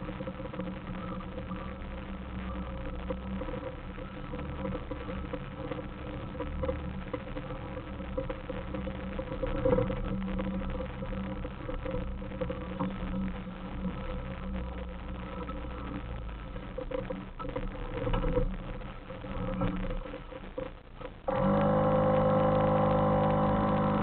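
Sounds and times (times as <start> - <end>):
off-road vehicle engine running: 21.3 - 24.0.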